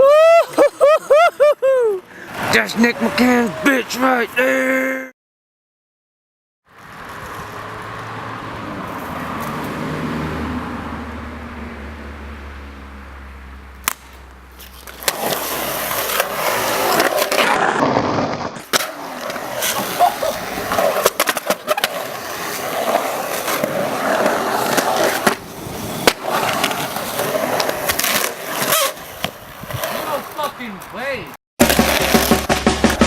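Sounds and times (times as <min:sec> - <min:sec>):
skateboard wheels rolling: 0:00.1 - 0:04.7, 0:06.7 - 0:10.3, 0:13.8 - 0:33.0
skateboard clacks: 0:14.8 - 0:30.5, 0:31.6 - 0:33.0.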